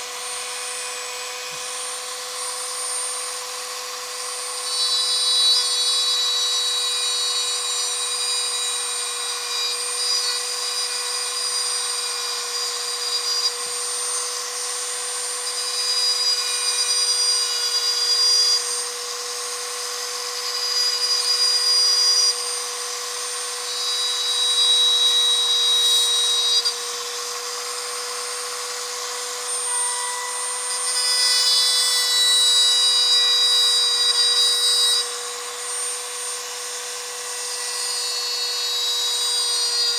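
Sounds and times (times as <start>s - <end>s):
rotary tool grinding: 0.0s - 39.9s.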